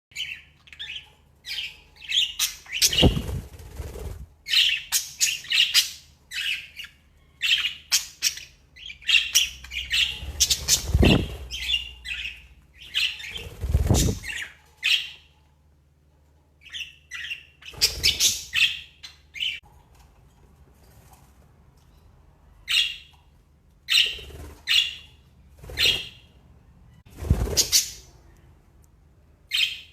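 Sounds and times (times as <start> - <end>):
budgies chirping: 0.1 - 15.3, 16.6 - 19.6, 26.9 - 28.4.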